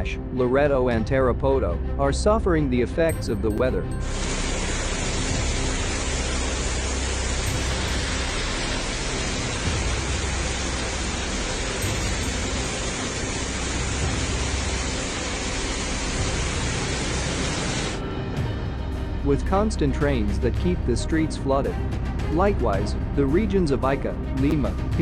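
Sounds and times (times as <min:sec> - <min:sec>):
low rumble: 0:03.4 - 0:17.1
heavy rain and flood water rushing: 0:04.0 - 0:18.0.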